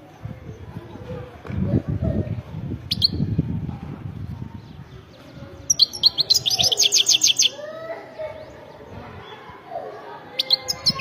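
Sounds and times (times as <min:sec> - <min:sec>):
goldfinch twittering song: 0:05.1 - 0:07.6.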